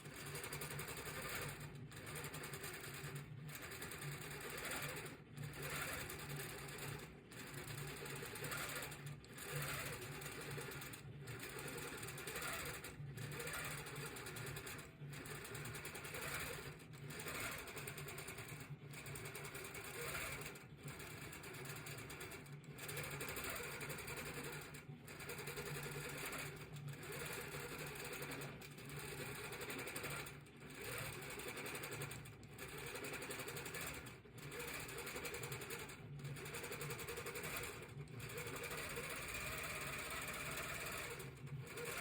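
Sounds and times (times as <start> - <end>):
sewing machine stitching: 0.0 - 42.0.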